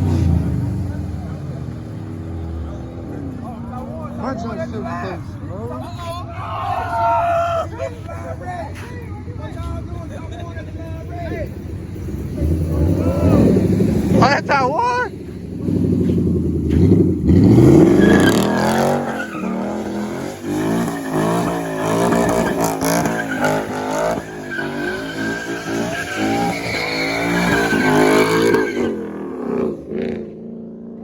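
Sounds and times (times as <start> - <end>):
tires squealing: 0.0 - 30.4
car engine revving hard: 12.0 - 30.5.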